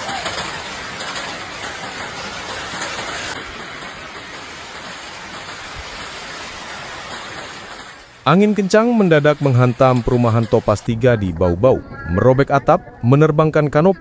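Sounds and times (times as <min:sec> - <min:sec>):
rain: 0:00.0 - 0:10.9.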